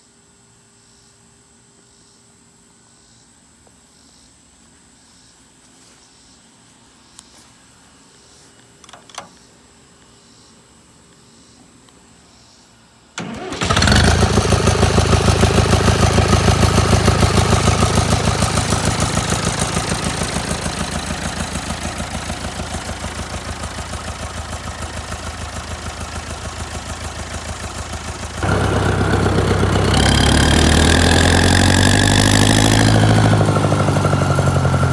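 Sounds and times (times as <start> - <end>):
tractor diesel engine running: 13.2 - 34.9.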